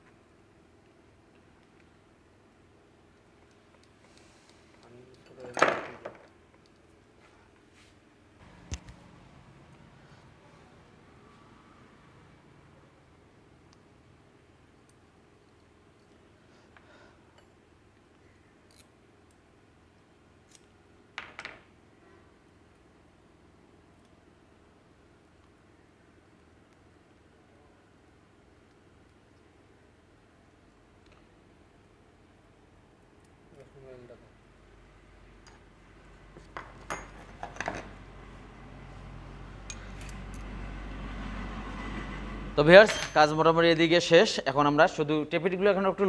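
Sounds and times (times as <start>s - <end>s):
faint steady hum: 0.0s - 41.1s
metal tools clinking: 5.1s - 5.8s, 42.8s - 43.3s
tools and parts clicking: 18.6s - 19.4s.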